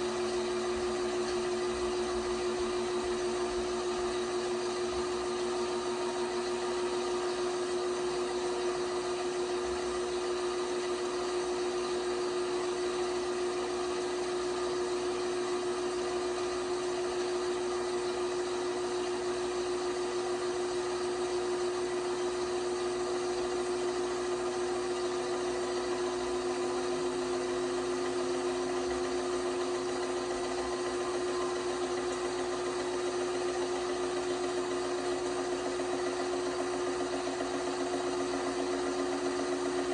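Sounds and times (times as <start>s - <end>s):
lower machine tone: 0.0s - 16.7s, 25.6s - 39.0s
washing machine motor whine: 0.0s - 39.9s.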